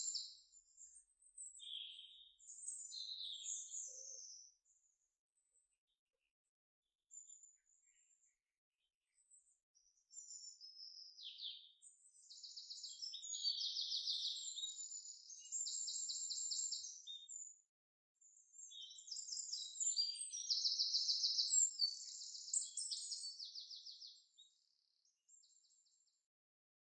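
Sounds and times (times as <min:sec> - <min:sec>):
songbird chirping and trilling: 0:00.0 - 0:05.8, 0:07.1 - 0:08.4, 0:09.0 - 0:17.6, 0:18.2 - 0:26.2.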